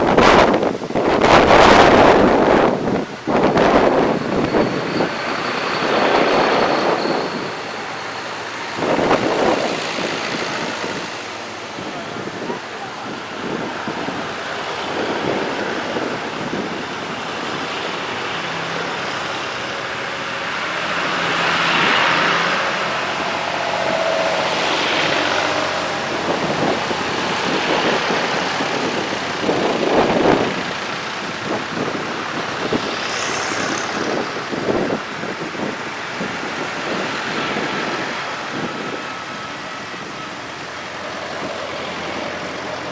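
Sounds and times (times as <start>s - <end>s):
tractors driving past: 0.0s - 42.9s.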